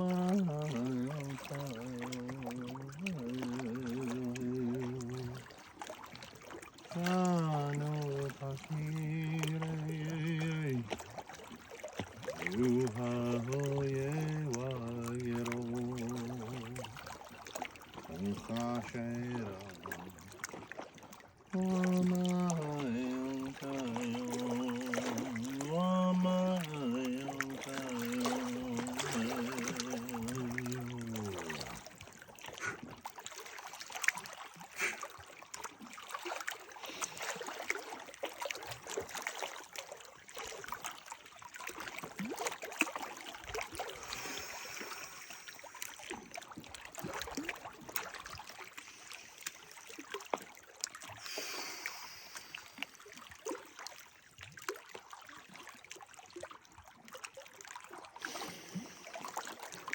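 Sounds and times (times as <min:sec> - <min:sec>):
small water splashes: 0:00.0 - 0:59.9
water trickling and gurgling: 0:00.0 - 0:59.9
voice holding a wavering note: 0:21.6 - 0:31.8.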